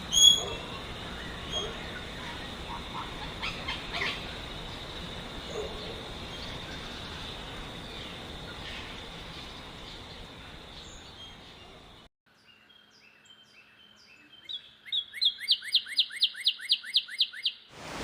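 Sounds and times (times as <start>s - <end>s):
wild birds calling: 0.0s - 12.1s.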